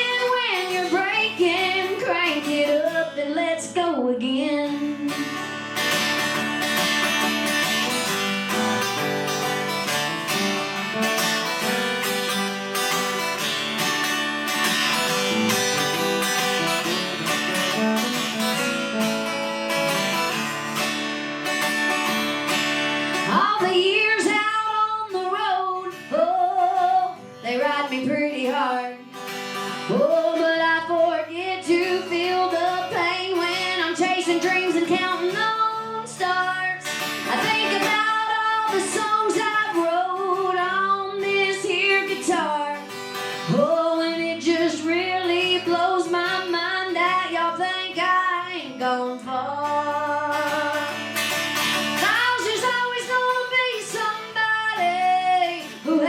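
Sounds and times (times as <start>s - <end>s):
woman singing: 0.0s - 5.7s, 23.2s - 29.1s, 29.8s - 51.1s, 51.8s - 56.0s
acoustic guitar: 0.0s - 56.0s.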